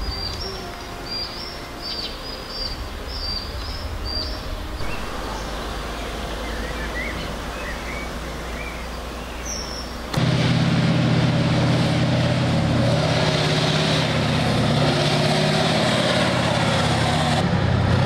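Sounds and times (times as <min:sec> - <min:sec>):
birds calling: 0:00.0 - 0:10.2
steady low rumble: 0:02.8 - 0:12.8.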